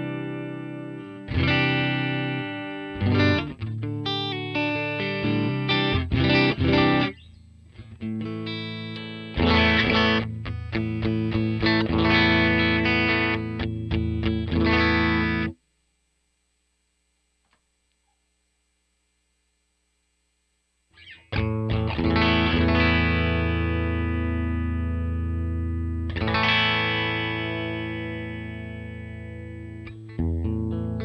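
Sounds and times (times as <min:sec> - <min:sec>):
electric guitar playing: 0:00.0 - 0:15.6, 0:21.0 - 0:31.0.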